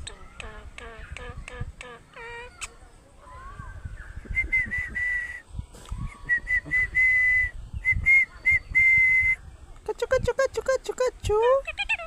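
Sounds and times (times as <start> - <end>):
person whistling: 4.4 - 5.4, 6.3 - 9.4.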